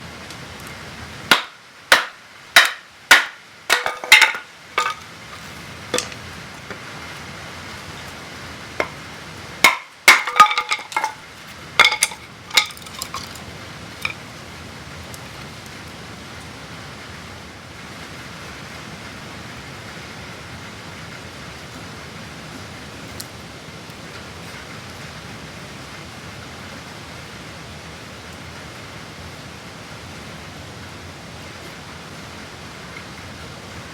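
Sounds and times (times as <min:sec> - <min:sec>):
steady rain: 0:00.0 - 0:33.9
baton knocking on knife blade: 0:01.3 - 0:05.0, 0:09.6 - 0:11.2.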